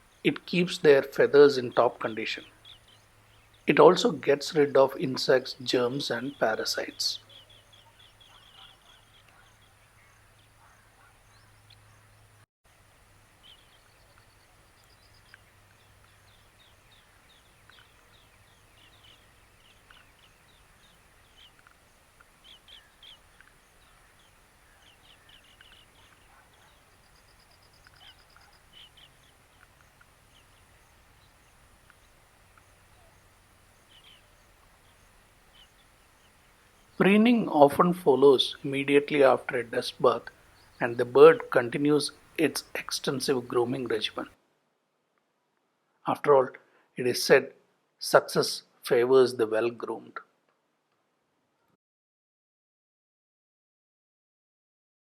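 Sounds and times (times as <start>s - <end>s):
bird chirps and trills: 0.0s - 12.4s, 13.2s - 37.5s, 38.3s - 42.8s.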